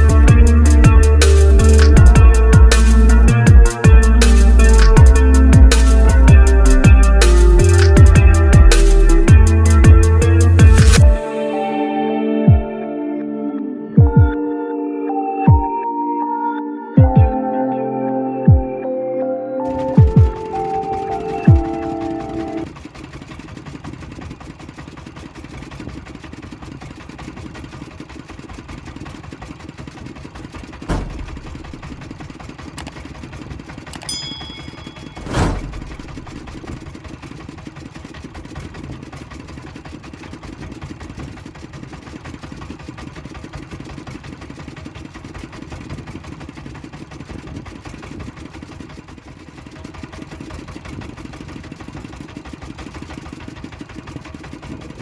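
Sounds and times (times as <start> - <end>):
boat engine running: 0.0 - 18.9, 19.6 - 55.0
sharp knocks: 30.9 - 32.2, 34.6 - 36.8.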